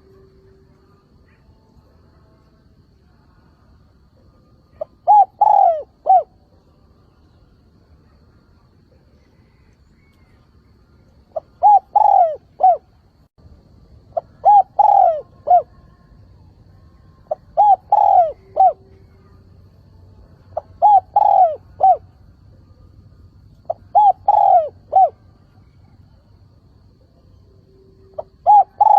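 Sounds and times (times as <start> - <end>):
dove cooing: 4.7 - 6.4, 11.3 - 12.9, 14.1 - 15.8, 17.3 - 19.3, 20.6 - 22.1, 23.6 - 26.0, 28.1 - 28.9.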